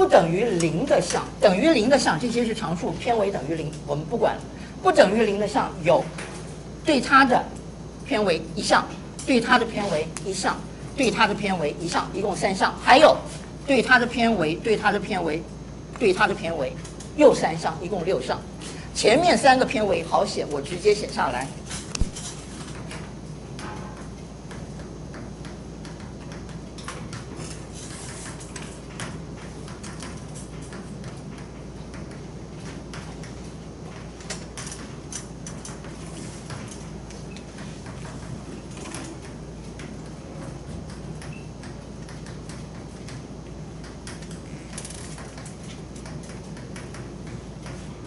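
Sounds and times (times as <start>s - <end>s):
low room hum: 0.0s - 48.0s
chalk tapping and scratching: 27.1s - 30.9s.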